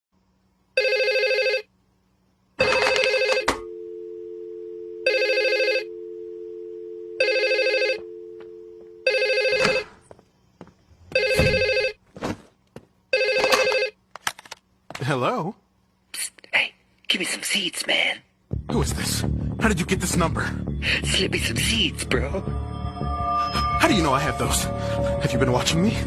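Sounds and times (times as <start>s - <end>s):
telephone ringing: 0.8s - 1.7s, 2.6s - 10.0s, 11.1s - 12.0s, 13.1s - 14.0s.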